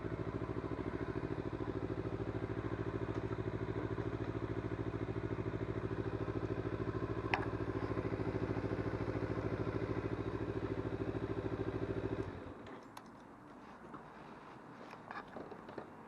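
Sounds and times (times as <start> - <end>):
motorcycle engine idling: 0.0 - 12.6.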